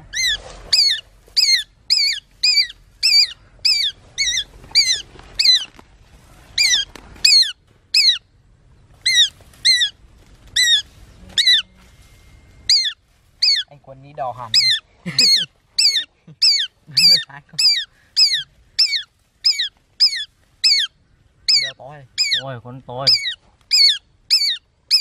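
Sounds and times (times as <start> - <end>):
bird squawking calls: 0.0 - 5.7, 6.5 - 8.3, 9.0 - 10.0, 10.6 - 11.8, 12.7 - 13.8, 14.5 - 25.0.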